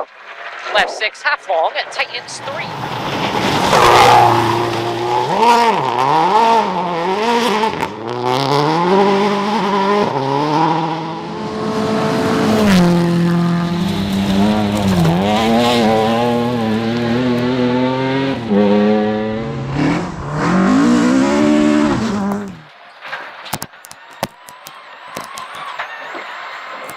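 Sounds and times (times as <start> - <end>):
rally car engine revving: 1.7 - 22.7.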